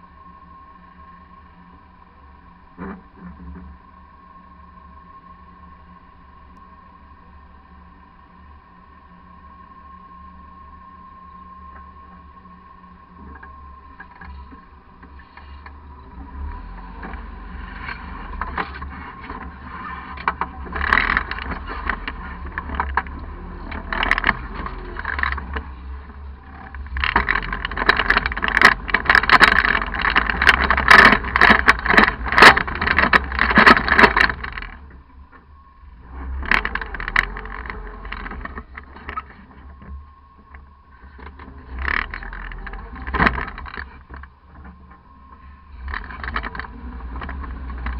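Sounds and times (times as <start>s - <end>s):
engine running low: 0.0s - 47.9s
rushing scraping over rocks: 14.0s - 35.2s, 35.8s - 39.9s, 41.0s - 47.9s.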